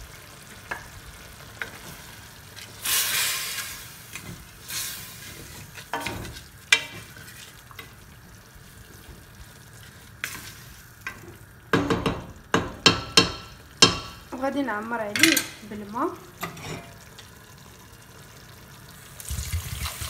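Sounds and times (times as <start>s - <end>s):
food sizzling in pot: 0.0s - 20.0s
spatula knocking against pot: 11.7s - 14.2s.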